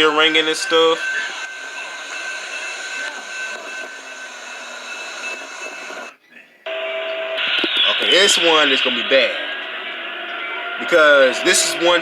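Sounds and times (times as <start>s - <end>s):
railroad crossing bell ringing: 0.0s - 7.6s
outdoor noise: 0.0s - 12.0s.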